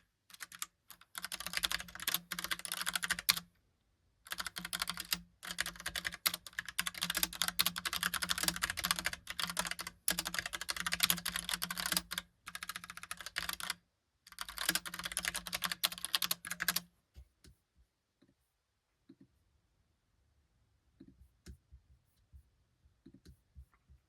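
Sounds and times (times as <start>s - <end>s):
mechanical keyboard typing: 0.3s - 3.5s, 4.3s - 16.8s.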